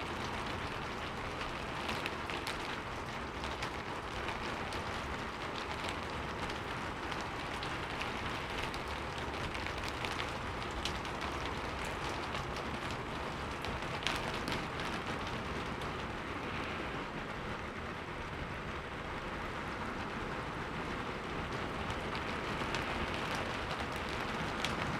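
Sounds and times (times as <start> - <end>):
raindrop taps: 0.2 - 16.2, 21.4 - 24.9
heavy rain hissing: 11.5 - 24.9.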